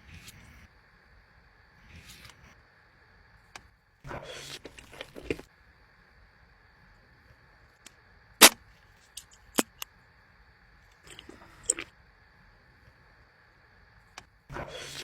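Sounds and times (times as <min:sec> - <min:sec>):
faint steady hum: 0:00.0 - 0:15.0
person crunching food: 0:04.4 - 0:05.4, 0:11.1 - 0:11.9
person chewing: 0:04.6 - 0:05.4, 0:11.1 - 0:11.9.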